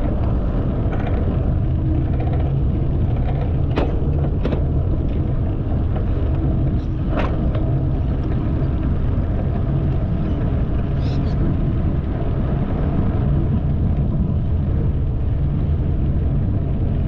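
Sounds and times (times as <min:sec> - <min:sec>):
wind and bicycle tyre rumble: 0:00.0 - 0:17.0.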